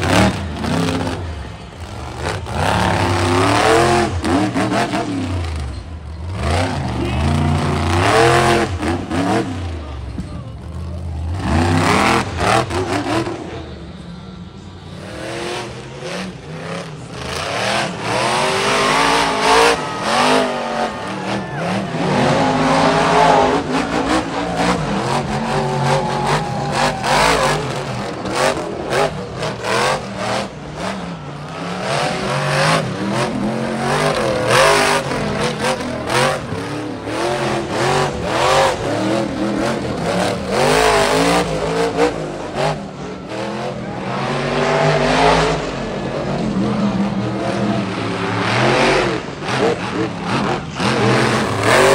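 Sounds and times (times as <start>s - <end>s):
monster truck engines revving: 0.0s - 51.9s.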